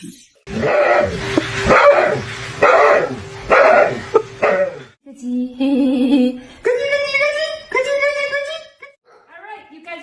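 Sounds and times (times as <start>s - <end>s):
dog barking: 0.6s - 4.9s, 9.1s - 9.3s.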